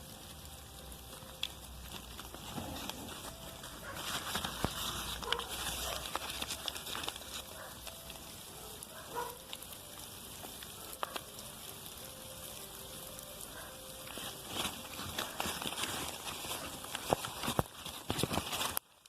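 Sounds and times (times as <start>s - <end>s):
soft crackling rustle: 0.0s - 19.0s
sharp clicks and ticks: 9.2s - 13.6s.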